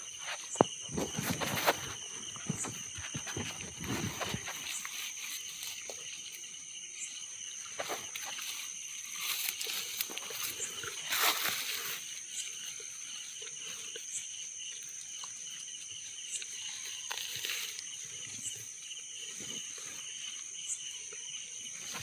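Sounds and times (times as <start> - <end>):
insects buzzing: 0.0 - 22.0
brief rustles: 0.2 - 5.9.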